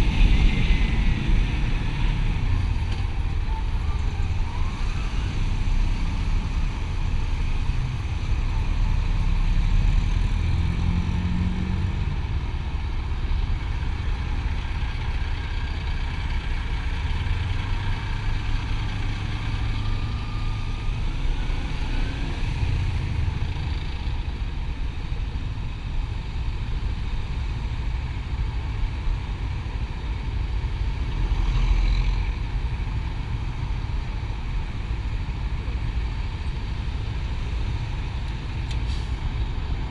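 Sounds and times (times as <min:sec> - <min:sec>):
road and wind noise: 0:00.0 - 0:39.9.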